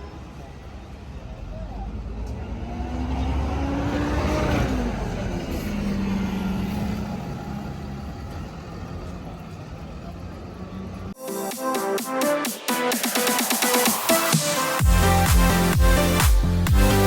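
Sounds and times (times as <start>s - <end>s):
road noise: 0.0s - 17.0s
electronic dance music: 11.2s - 17.0s.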